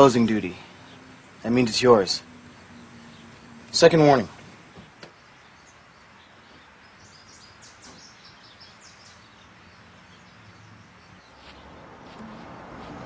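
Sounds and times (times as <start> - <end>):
faint high bird chirps: 4.7 - 11.7.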